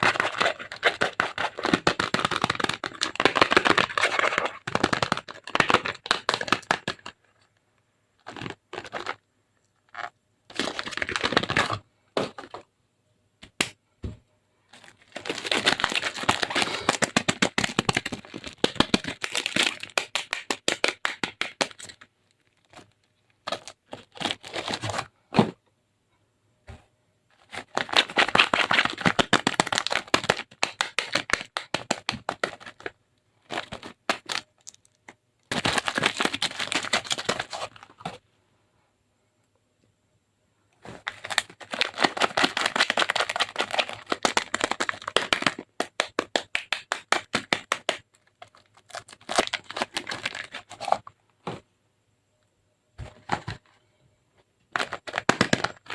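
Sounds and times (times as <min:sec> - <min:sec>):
dry soap crackling: 0:00.0 - 0:12.6, 0:14.6 - 0:25.1, 0:27.4 - 0:38.2, 0:40.8 - 0:51.1.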